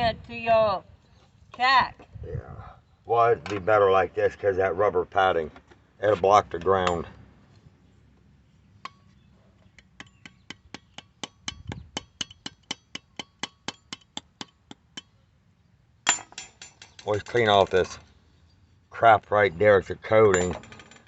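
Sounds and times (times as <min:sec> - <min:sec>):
metal clank: 0:16.0 - 0:18.1, 0:20.2 - 0:21.0.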